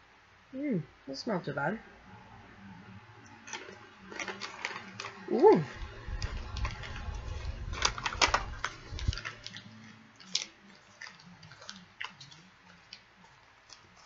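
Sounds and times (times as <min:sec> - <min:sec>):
crunchy snack being chewed: 0:03.4 - 0:14.0.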